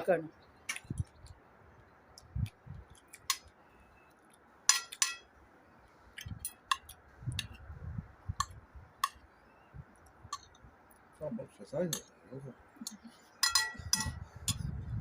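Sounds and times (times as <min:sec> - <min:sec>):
cutlery and dishes clinking: 0:04.7 - 0:05.2, 0:13.4 - 0:14.6.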